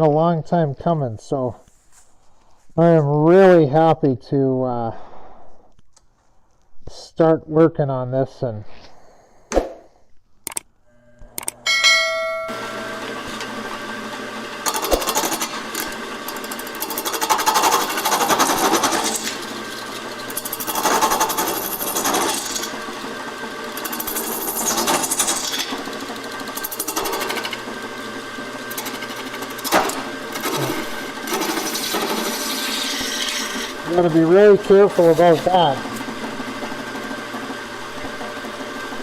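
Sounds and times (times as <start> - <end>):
wood lathe motor hum: 10.9 - 39.0
turning tool cutting bowl: 11.3 - 39.0.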